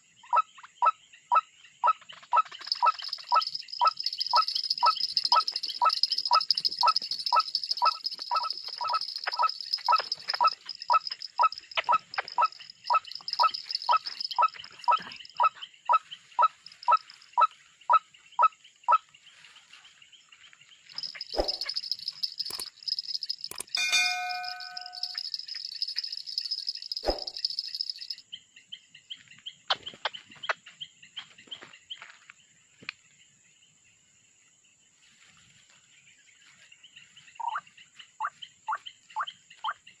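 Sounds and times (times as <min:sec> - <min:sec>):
waterhen calling: 0:02.4 - 0:15.5
short ringing chime: 0:21.1 - 0:28.0.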